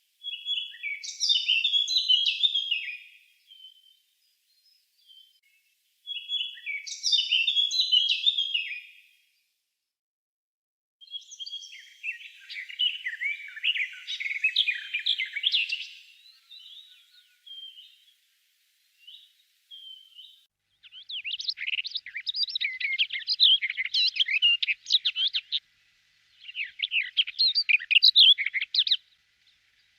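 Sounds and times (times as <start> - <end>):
songbirds singing: 0.0 - 9.1, 11.0 - 29.9.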